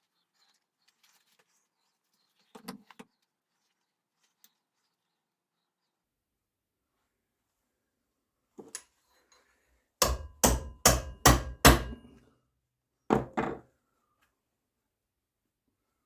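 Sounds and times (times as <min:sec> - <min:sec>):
hammer striking metal: 0:10.0 - 0:12.2.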